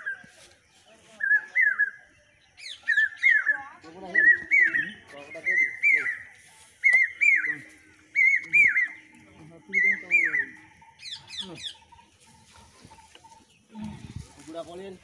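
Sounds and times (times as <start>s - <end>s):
bird whistling: 2.6s - 9.1s, 9.7s - 11.8s.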